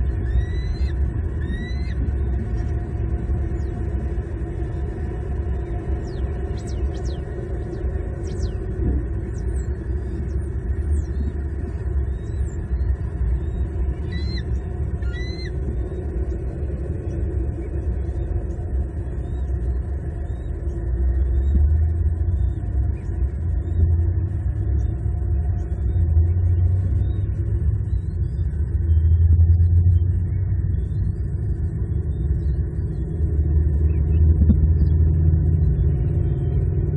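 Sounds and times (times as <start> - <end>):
low rumble: 0.0 - 36.9
high bird chirps: 0.3 - 2.0, 14.0 - 15.5.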